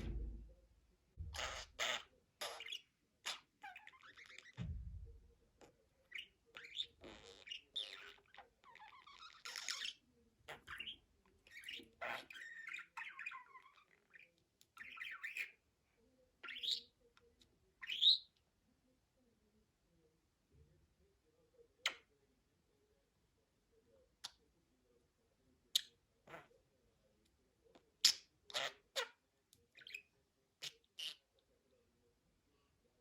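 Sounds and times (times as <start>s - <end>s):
low thump: 0.0s - 0.6s, 4.6s - 5.3s.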